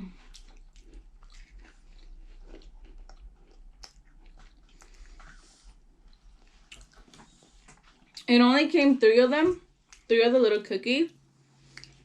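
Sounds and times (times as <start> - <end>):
person chewing cookie: 0.0 - 8.3, 11.6 - 12.0.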